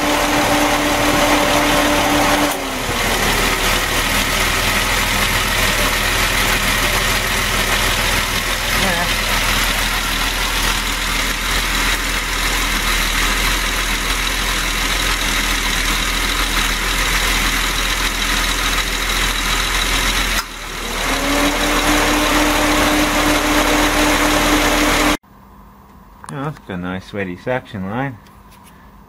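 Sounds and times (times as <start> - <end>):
steady hum rising in pitch: 0.0 - 12.8
car engine idling: 0.0 - 25.2.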